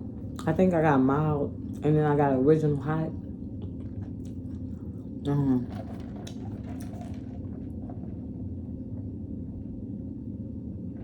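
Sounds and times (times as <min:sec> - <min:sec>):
steady low hum: 0:00.0 - 0:11.0
wet chewing sounds: 0:03.4 - 0:05.2.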